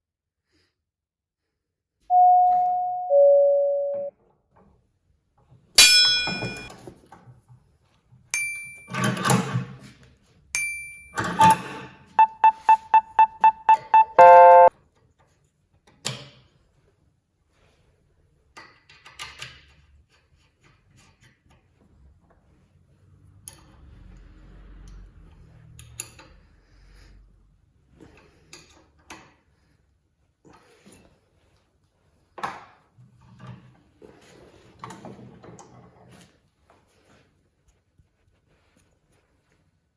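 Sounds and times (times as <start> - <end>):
electronic chime tones: 2.1 - 4.1, 5.9 - 6.7, 12.2 - 14.7
short electronic beeps: 2.1 - 4.1, 12.2 - 14.7.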